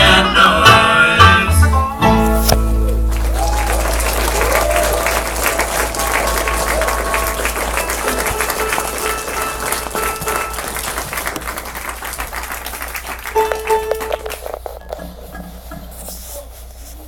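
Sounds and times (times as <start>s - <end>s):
stray instrument notes: 0.0s - 14.5s
audience applause: 2.8s - 14.7s.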